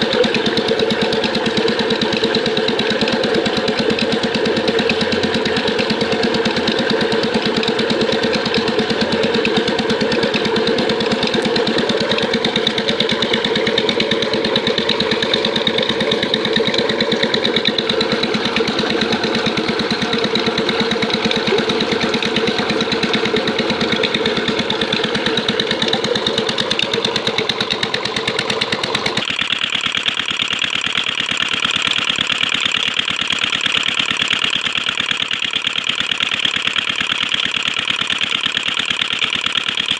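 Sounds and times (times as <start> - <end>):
diesel engine running: 0.0 - 29.3.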